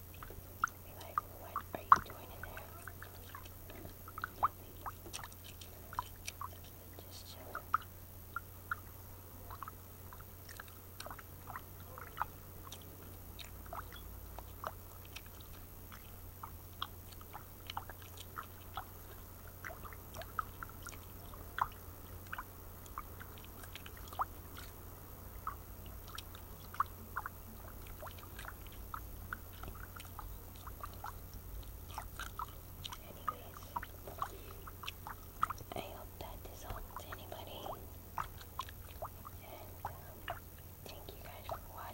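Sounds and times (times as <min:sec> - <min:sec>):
gum chewing clicks and smacks: 0:25.4 - 0:41.9.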